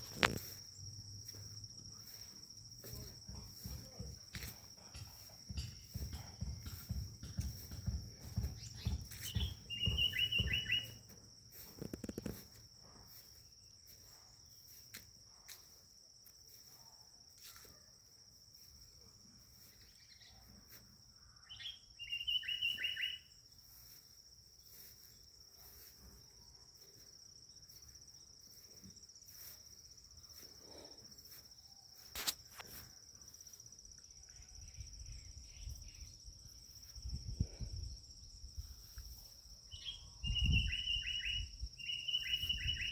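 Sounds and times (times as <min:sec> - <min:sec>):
bird calling: 0:08.6 - 0:11.0, 0:21.4 - 0:23.3.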